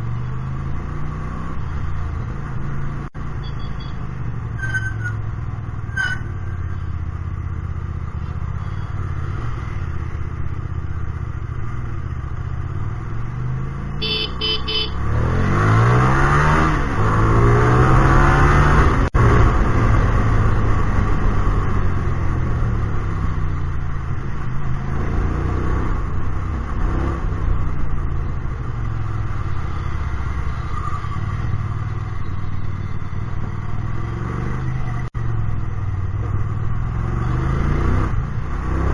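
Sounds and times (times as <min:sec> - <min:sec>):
motorcycle engine revving: 0:08.9 - 0:38.9.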